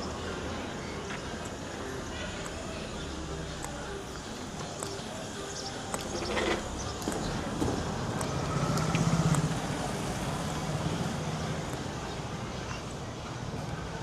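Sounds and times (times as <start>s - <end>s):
street noise: 0.0s - 14.0s
vehicle engine passing: 6.4s - 12.6s.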